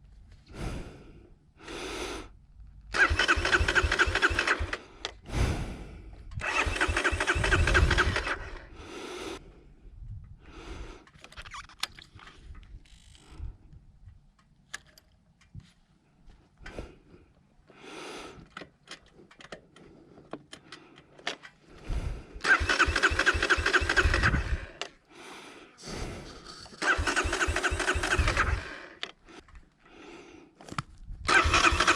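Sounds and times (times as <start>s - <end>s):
electric starter cranking engine: 2.9s - 4.9s, 6.4s - 8.7s, 22.4s - 24.9s, 26.3s - 29.1s, 31.3s - 31.9s
light clicks and rattles: 18.4s - 21.7s.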